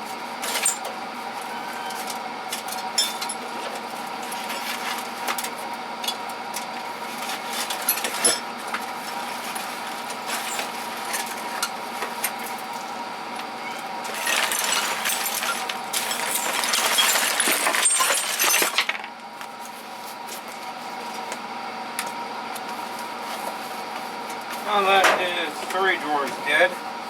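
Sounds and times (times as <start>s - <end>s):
steady background hum: 0.0s - 27.0s
metal tools clinking and clattering: 2.6s - 3.4s, 14.1s - 19.0s.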